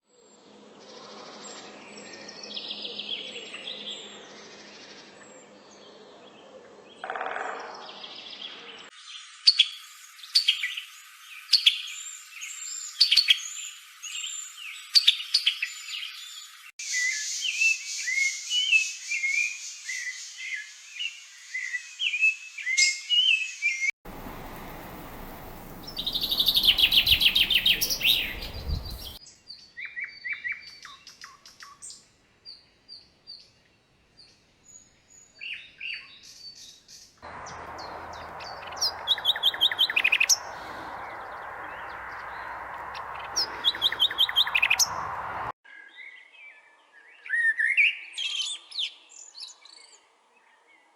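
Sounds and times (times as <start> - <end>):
songbirds singing and chirping: 0.1 - 50.9
background hiss: 24.1 - 29.2
loud fast bird trill: 24.2 - 29.2, 37.4 - 45.4.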